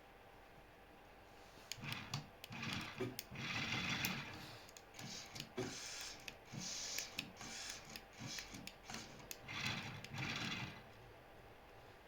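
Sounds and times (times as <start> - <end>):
clicks: 1.7 - 10.5
toy car motor whirring: 1.7 - 10.9.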